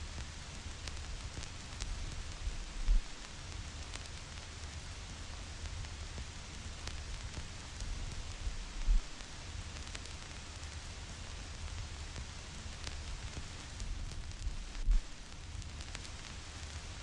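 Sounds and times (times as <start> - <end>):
vinyl record crackle: 0.0 - 17.0
white noise hiss: 0.0 - 17.0
low rumble: 8.5 - 9.2, 14.2 - 15.1.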